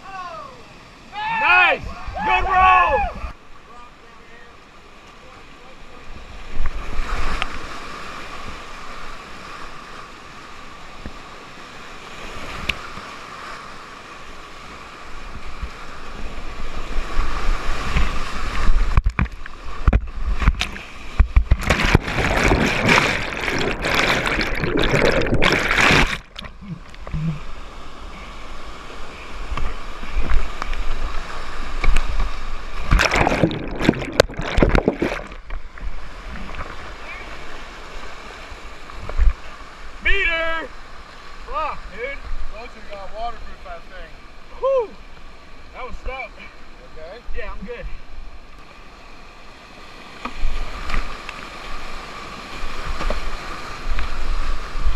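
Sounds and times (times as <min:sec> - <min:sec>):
water splashing on microphone: 0:16.8 - 0:27.6, 0:29.4 - 0:38.2
whitewater rapids rushing: 0:20.7 - 0:27.5.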